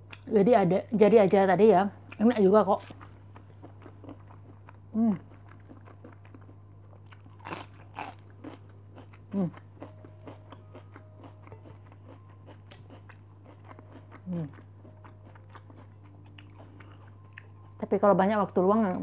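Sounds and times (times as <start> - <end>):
close-up chewing: 2.8 - 17.8
woman humming: 4.9 - 5.3, 9.3 - 9.6, 14.2 - 14.6
crunching bite into cabbage: 5.5 - 14.6.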